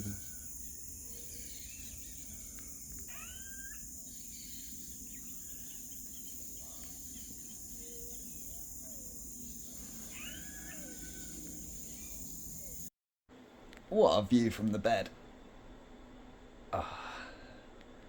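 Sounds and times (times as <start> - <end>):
birds calling: 0.0 - 12.9
high insect drone: 0.0 - 12.9.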